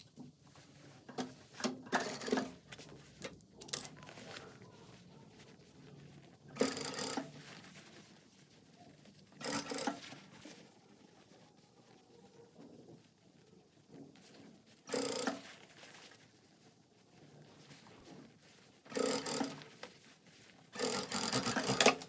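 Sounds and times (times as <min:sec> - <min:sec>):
sewing machine stitching: 0:01.2 - 0:02.6, 0:06.5 - 0:07.5, 0:09.3 - 0:10.5, 0:14.8 - 0:15.7, 0:18.9 - 0:19.9, 0:20.7 - 0:22.0.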